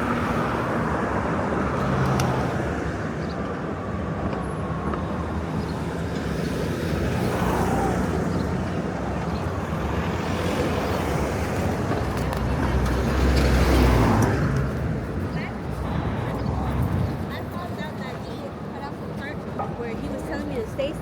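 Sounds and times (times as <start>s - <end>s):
passing cars: 0.0s - 21.0s.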